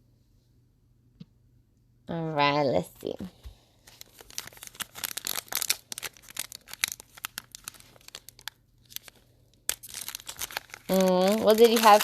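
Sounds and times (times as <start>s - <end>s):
card pack wrapper tearing and crinkling: 3.8s - 12.0s.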